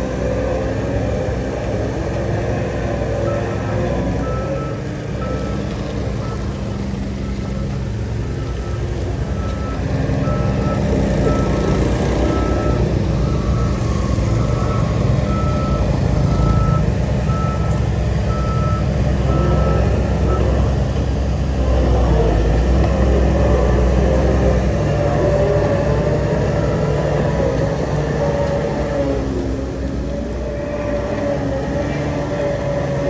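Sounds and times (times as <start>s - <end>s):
diesel engine rumble: 0.0s - 33.0s
reversing alarm beeping: 3.1s - 20.9s, 26.3s - 27.9s.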